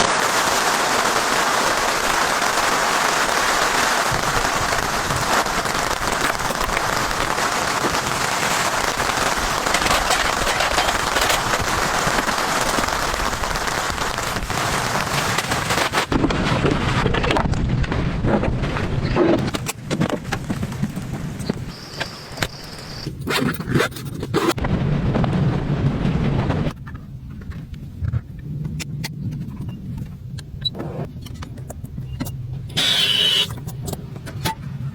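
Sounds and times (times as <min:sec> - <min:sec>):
heavy rain falling: 0:00.0 - 0:23.2, 0:24.5 - 0:27.0.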